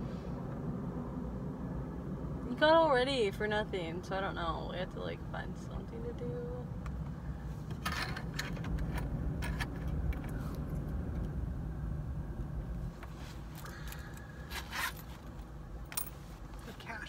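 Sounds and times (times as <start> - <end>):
car rumble: 0.0 - 17.0
handling clicks and rustles: 6.8 - 11.4, 12.9 - 17.0.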